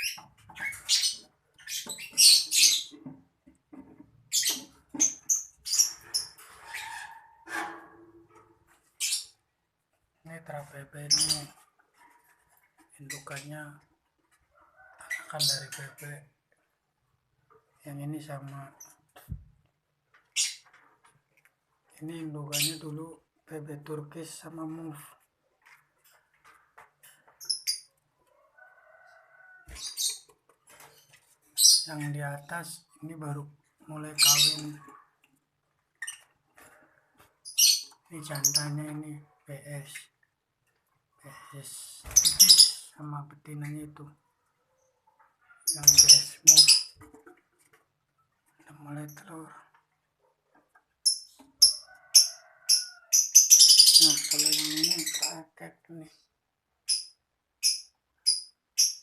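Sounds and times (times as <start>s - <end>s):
lovebirds chirping: 0.0s - 3.1s, 4.2s - 7.4s, 10.3s - 11.6s, 20.3s - 20.8s, 28.9s - 35.2s, 36.0s - 40.2s, 41.2s - 44.1s, 44.7s - 47.2s, 50.9s - 59.0s
lovebirds shrieking: 42.1s - 42.9s, 51.6s - 55.3s
bird chirps: 52.5s - 55.4s.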